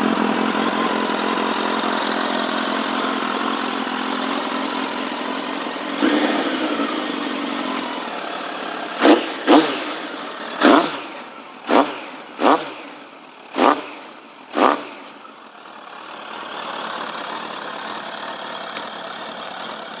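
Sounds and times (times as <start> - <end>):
motorcycle engine idling: 0.0 - 20.0
sharp throttle blips: 9.0 - 15.2.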